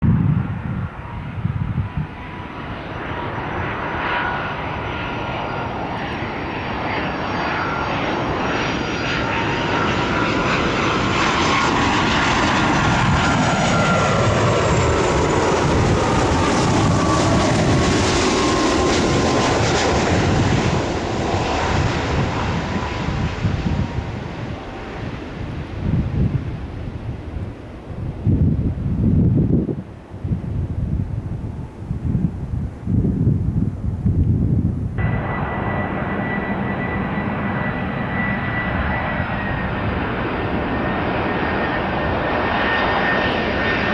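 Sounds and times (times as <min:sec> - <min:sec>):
airliner engines passing: 0:00.0 - 0:43.9
thin fan whine: 0:11.4 - 0:42.8.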